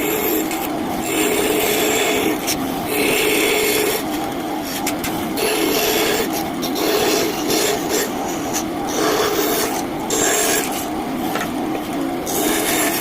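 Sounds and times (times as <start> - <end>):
bandsaw cutting wood: 5.4 - 8.2, 8.9 - 10.8, 12.2 - 13.0.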